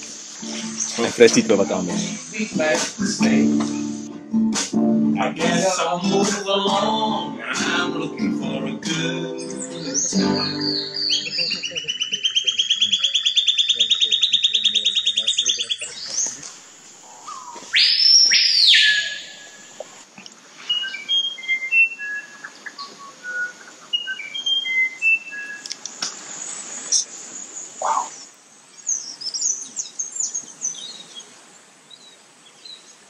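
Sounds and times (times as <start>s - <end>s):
slurred bird whistle: 9.4s - 16.2s, 17.3s - 19.7s, 20.7s - 25.7s
bird fast trill: 9.6s - 16.3s, 17.3s - 19.7s
short whistled bird notes: 9.8s - 16.2s, 17.3s - 19.6s, 20.7s - 25.6s.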